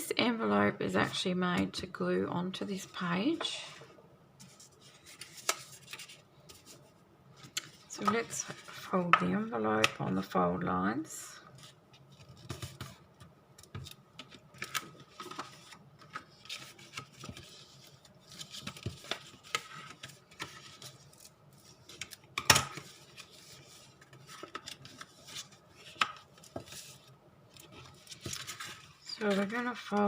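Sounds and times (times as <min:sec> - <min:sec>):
paper being folded and rubbed: 0:04.4 - 0:06.9, 0:22.8 - 0:30.0.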